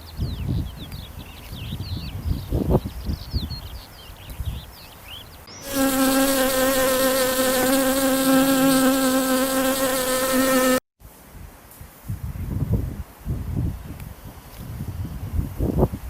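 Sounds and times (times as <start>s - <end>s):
flying insect buzzing: 5.5s - 10.8s.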